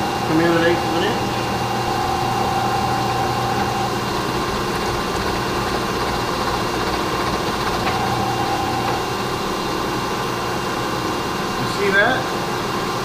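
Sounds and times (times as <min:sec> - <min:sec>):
milling machine cutting metal: 0:00.0 - 0:09.8.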